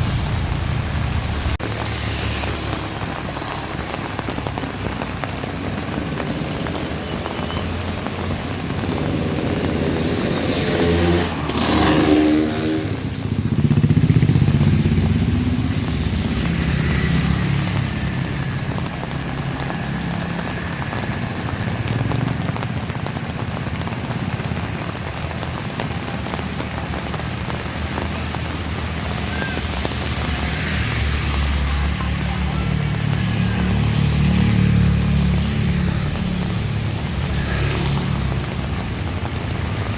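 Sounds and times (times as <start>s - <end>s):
heavy rain: 0.0s - 39.9s
motorcycle passing: 8.0s - 39.9s.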